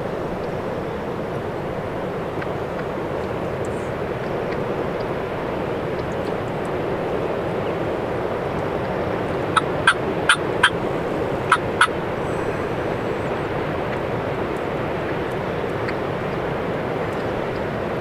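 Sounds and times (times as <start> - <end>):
steady wind noise: 0.0 - 18.0
turkey clucks: 2.3 - 5.2, 8.5 - 16.3.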